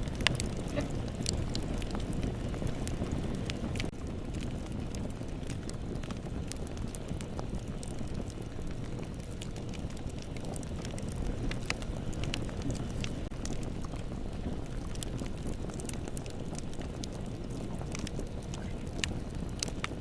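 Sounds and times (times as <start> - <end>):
burning wood crackling and popping: 0.0 - 20.0
rumble of bonfire flames: 0.0 - 20.0.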